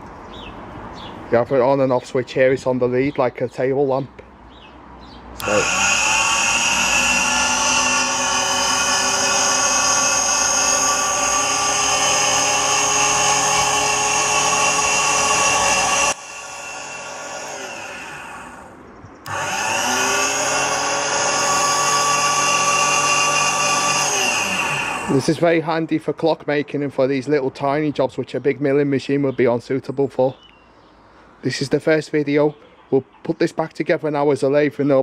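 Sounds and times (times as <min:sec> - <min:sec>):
electric motor whine: 0:05.4 - 0:25.3.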